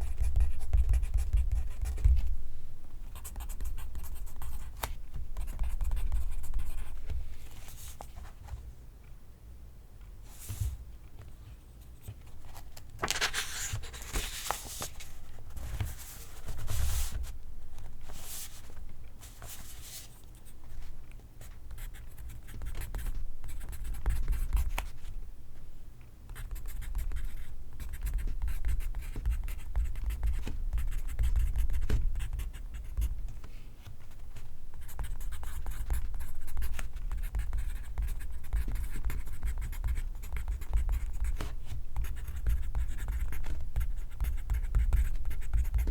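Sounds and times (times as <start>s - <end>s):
pencil writing on paper: 34.8s - 45.9s.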